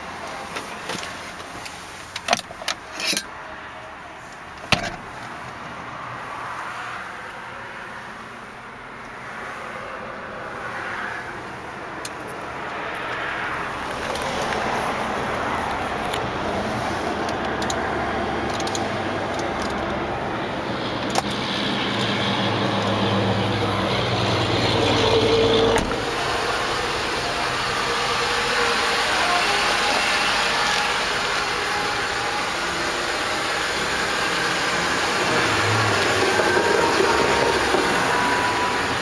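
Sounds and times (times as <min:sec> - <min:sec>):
car engine running: 0:18.5 - 0:39.0.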